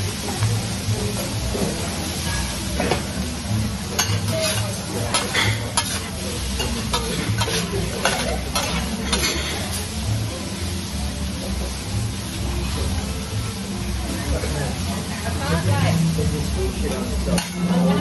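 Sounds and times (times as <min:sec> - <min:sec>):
food sizzling on a griddle: 0:00.0 - 0:18.0
metal spatulas scraping and clacking: 0:04.0 - 0:09.8, 0:16.9 - 0:18.0.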